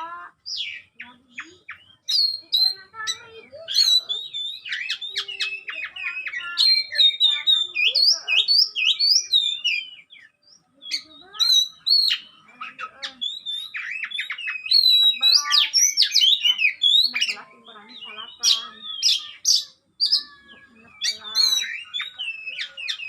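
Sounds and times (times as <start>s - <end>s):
songbird singing: 0.0s - 23.0s.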